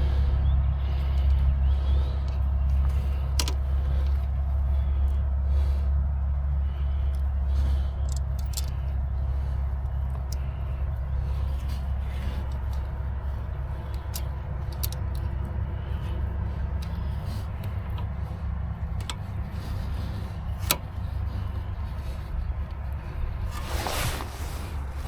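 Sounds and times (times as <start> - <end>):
steady low rumble: 0.0 - 25.0
metallic clicks of hand tools: 2.2 - 4.2, 8.0 - 8.9, 13.9 - 15.6, 18.9 - 19.9.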